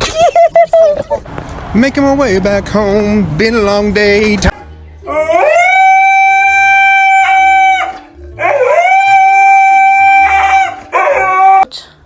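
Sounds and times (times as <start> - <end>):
dog howling: 5.1 - 11.6.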